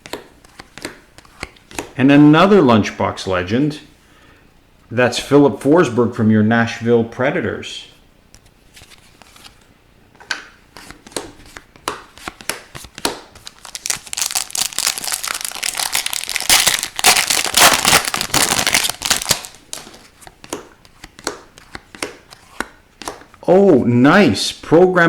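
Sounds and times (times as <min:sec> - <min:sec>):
foil wrapper tearing and crinkling: 0:13.4 - 0:20.0.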